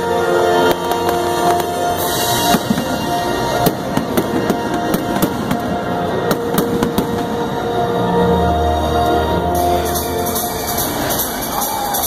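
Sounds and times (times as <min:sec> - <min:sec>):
fireworks exploding with sharp bangs: 0:00.0 - 0:08.3
music playing: 0:00.0 - 0:12.0.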